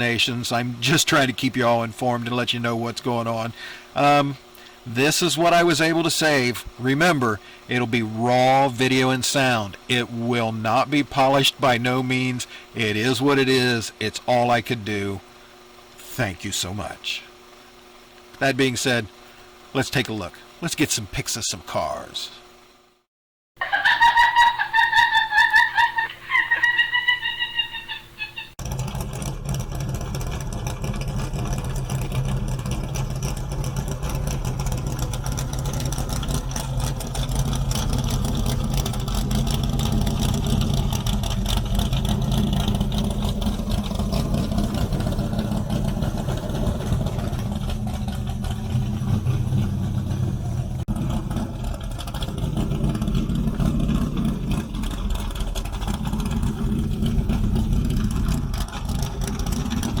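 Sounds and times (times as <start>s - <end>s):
car engine rumbling: 28.5s - 60.0s.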